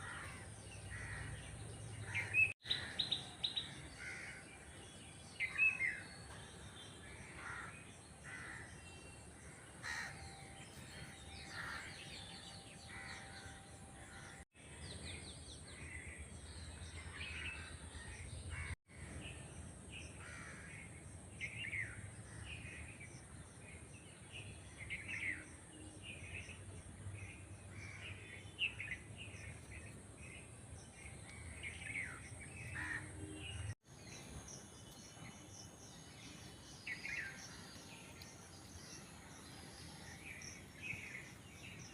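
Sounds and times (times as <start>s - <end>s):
birds calling: 0.0s - 14.5s, 27.2s - 41.9s.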